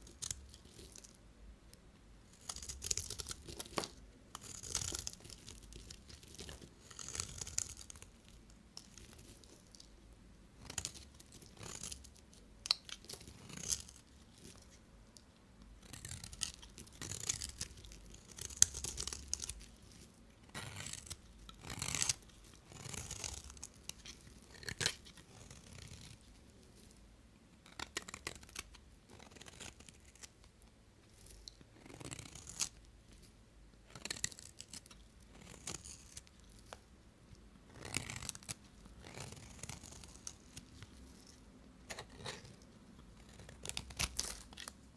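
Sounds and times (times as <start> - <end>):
knife cutting soap: 10.6 - 13.8, 15.6 - 19.6.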